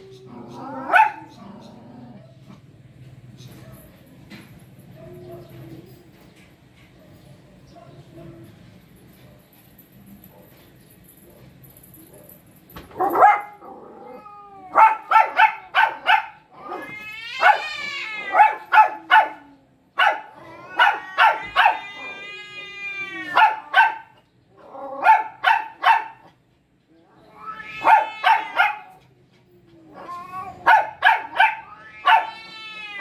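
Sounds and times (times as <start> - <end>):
dog barking: 0.7 - 1.4, 7.0 - 8.4, 13.0 - 13.6, 14.7 - 16.5, 17.4 - 17.6, 18.3 - 21.8, 23.3 - 24.2, 25.0 - 26.4, 27.8 - 29.0, 30.6 - 32.4
dog howling: 16.6 - 19.6, 20.3 - 23.7, 27.3 - 28.9, 29.8 - 33.0.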